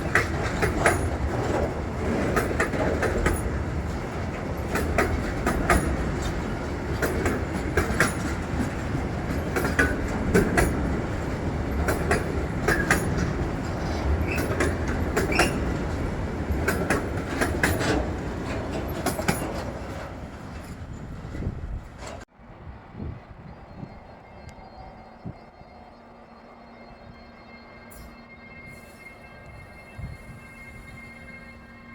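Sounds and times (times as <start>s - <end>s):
wheels clicking over rail joints: 0.0s - 22.3s
train wheels rumbling: 0.0s - 31.9s
brief squeaks: 15.3s - 15.7s.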